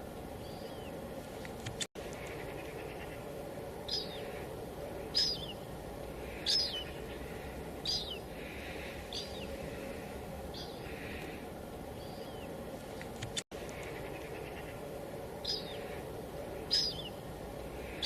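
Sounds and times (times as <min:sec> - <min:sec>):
light drizzle hissing: 0:00.0 - 0:18.0
bird chirping: 0:00.4 - 0:01.0, 0:01.6 - 0:18.0.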